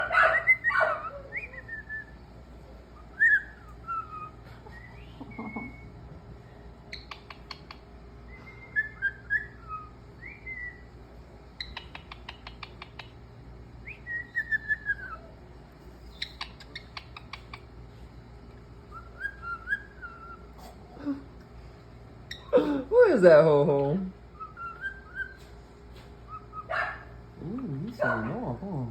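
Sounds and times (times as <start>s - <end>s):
parrot whistling: 0.0s - 2.2s, 3.0s - 10.9s, 11.6s - 13.2s, 13.8s - 15.4s, 18.9s - 20.7s, 24.3s - 25.5s, 26.2s - 27.0s
parrot rapid clicks: 11.6s - 13.2s.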